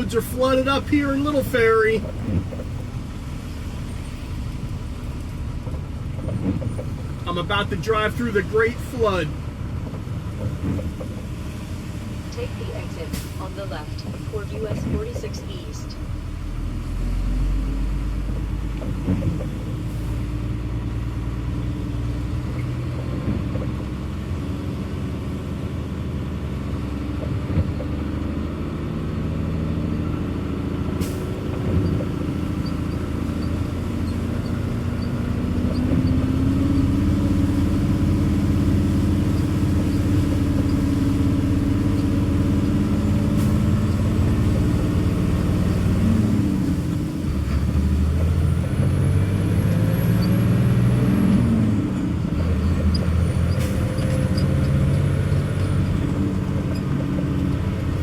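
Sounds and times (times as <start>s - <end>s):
car engine running: 0.0s - 19.8s
road rumble: 0.0s - 58.0s.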